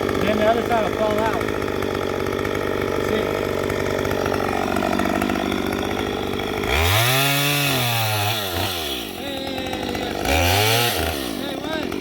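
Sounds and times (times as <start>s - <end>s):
chainsaw idling and revving: 0.0s - 12.0s.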